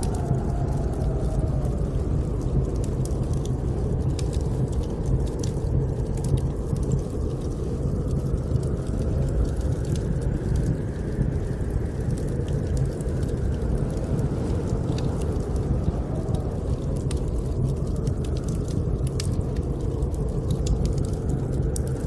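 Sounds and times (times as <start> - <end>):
wind rumbling: 0.0 - 22.0
wood fire crackling: 0.0 - 22.0.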